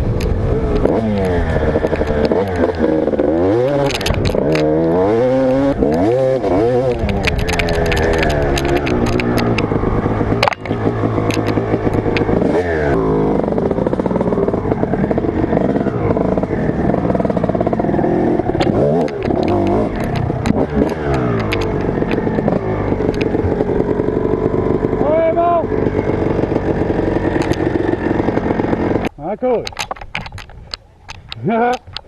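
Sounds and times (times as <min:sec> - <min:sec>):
dirt bike engine revving: 0:00.0 - 0:29.1
rattling clicks and knocks: 0:00.2 - 0:12.6, 0:16.8 - 0:24.2, 0:26.2 - 0:32.0.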